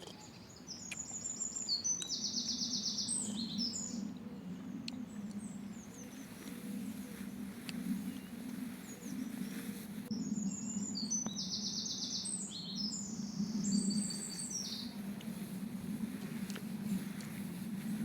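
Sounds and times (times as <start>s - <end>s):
songbird trilling: 0.0s - 4.0s, 10.2s - 15.0s
steady low hum: 0.0s - 18.0s.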